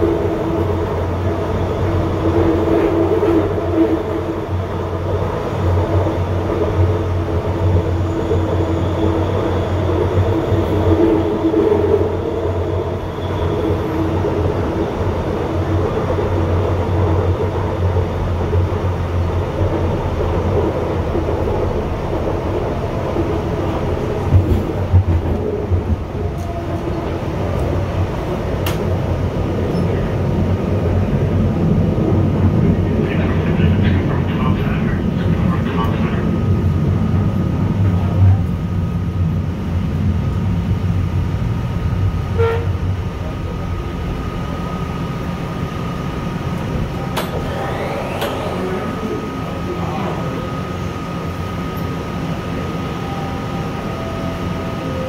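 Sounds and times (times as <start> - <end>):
train cabin rumble: 0.0 - 55.0.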